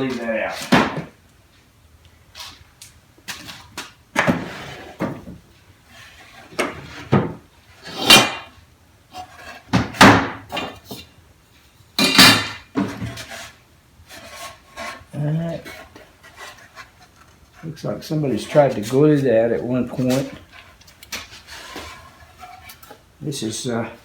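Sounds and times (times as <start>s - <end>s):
drawers sliding scrapes: 3.3s - 11.0s, 12.0s - 23.0s.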